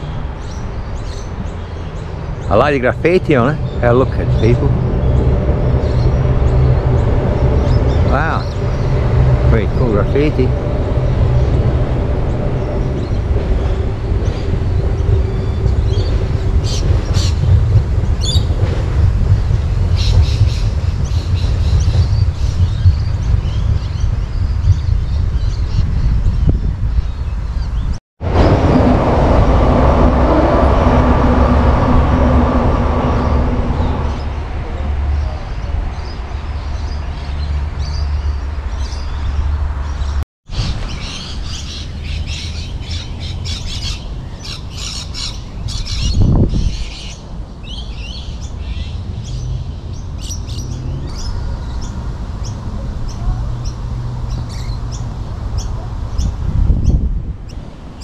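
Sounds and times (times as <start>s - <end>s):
birds chirping and squawking: 0.0s - 28.0s, 35.2s - 57.1s
electric train rumbling past: 0.0s - 58.0s.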